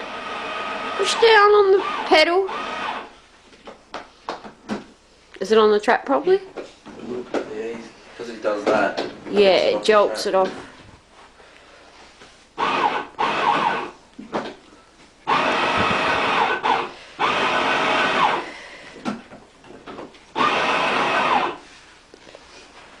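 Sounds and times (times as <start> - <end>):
toy train electric motor whining: 12.6 - 13.9, 15.3 - 18.5, 20.4 - 21.6.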